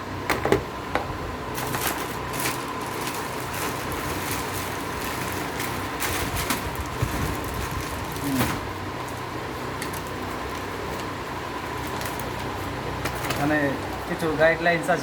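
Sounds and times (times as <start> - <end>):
steady background hum: 0.0 - 15.0
plastic parts rustling: 1.5 - 9.2.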